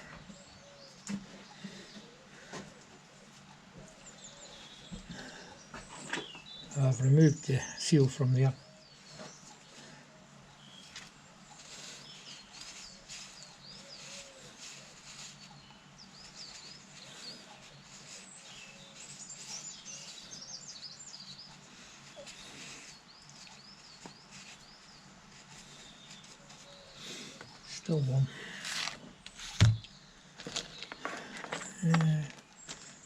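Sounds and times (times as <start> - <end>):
small bird chirping: 10.5 - 32.8.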